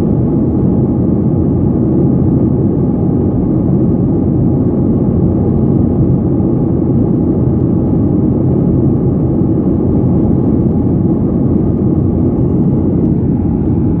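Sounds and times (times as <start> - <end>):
aircraft engine low rumble: 0.0 - 14.0.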